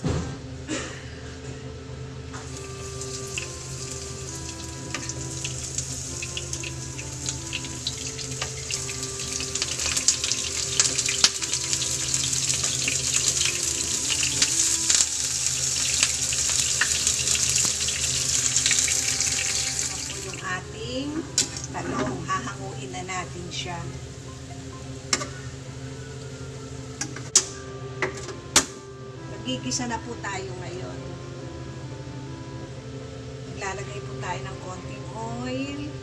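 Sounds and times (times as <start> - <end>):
eggplant frying in hot oil: 2.5 - 20.5.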